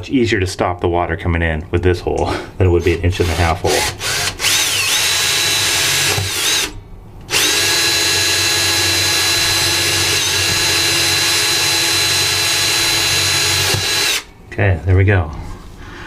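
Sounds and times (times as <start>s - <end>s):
power drill running: 3.2s - 14.3s.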